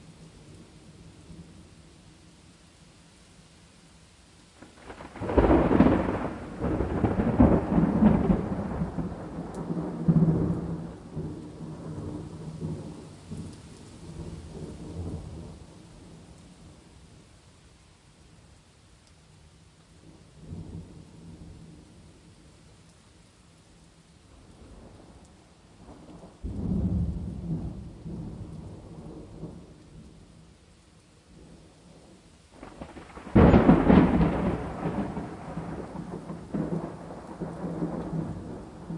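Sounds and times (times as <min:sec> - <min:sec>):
steady rain: 0:00.0 - 0:38.9
thunder rumbling: 0:04.6 - 0:13.4, 0:25.8 - 0:30.2, 0:32.6 - 0:38.9.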